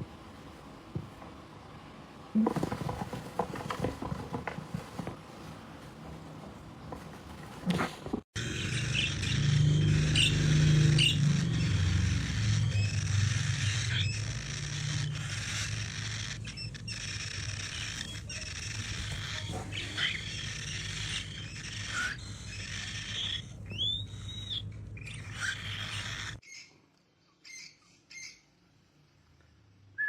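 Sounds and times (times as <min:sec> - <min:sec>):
steady hum and hiss: 0:00.0 - 0:18.0
parrot chirping: 0:08.4 - 0:26.8, 0:27.4 - 0:28.6.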